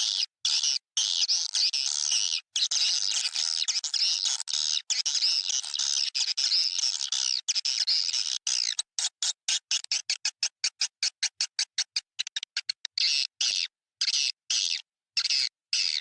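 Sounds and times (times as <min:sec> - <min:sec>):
swiftlets twittering and chirping: 0:09.5 - 0:16.0.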